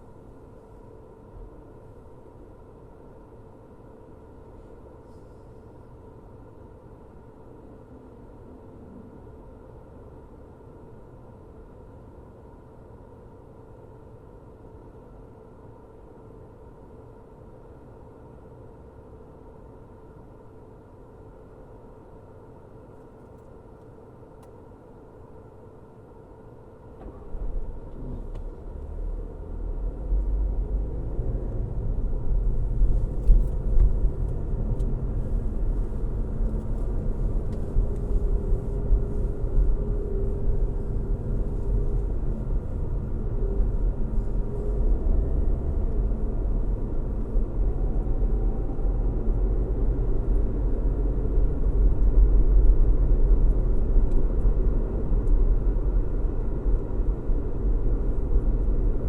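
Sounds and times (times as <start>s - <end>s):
car engine and road noise: 26.8s - 59.0s.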